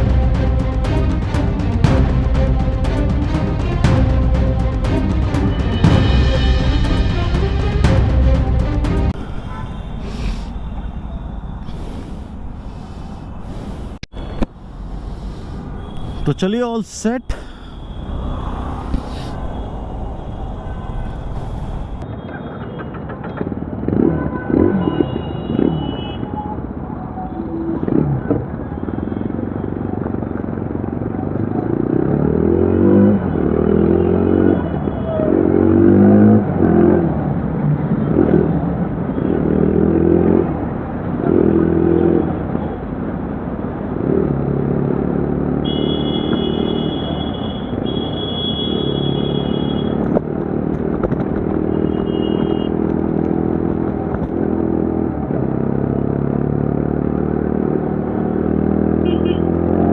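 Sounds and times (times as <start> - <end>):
motorcycle engine accelerating: 0.0 - 13.3.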